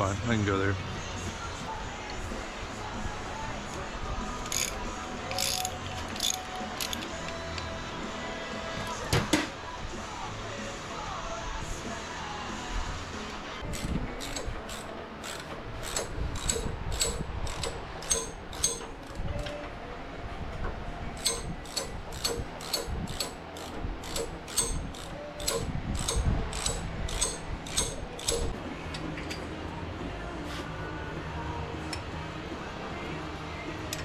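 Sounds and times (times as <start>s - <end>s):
ratchet wrench clicking: 4.4s - 7.7s, 13.7s - 19.2s, 21.2s - 29.4s.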